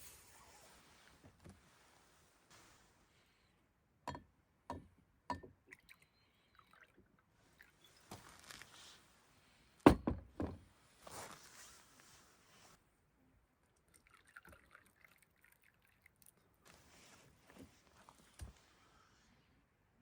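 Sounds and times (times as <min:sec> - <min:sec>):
soft rustling: 0:00.0 - 0:03.2, 0:07.9 - 0:09.4, 0:10.8 - 0:12.8, 0:16.6 - 0:19.0
loud thunk: 0:09.9 - 0:10.6.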